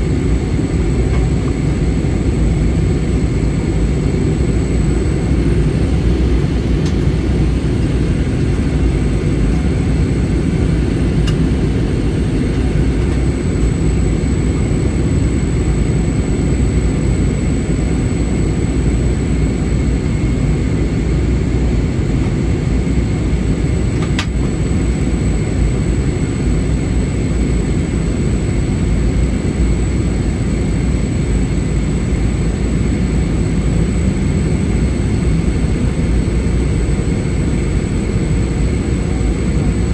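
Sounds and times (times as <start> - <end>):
high whine: 0.0 - 14.7
airplane cabin engine roar: 0.0 - 39.9.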